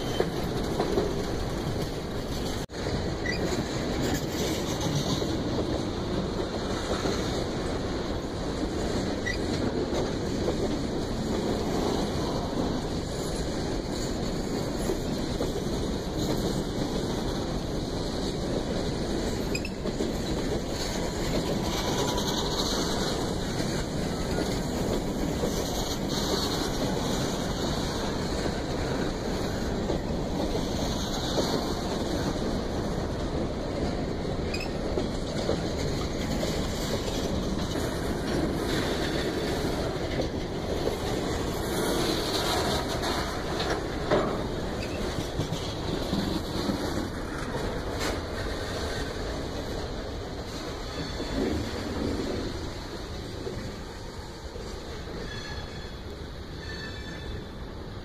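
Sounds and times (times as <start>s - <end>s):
steel wheels rolling on rails: 0.0s - 58.0s.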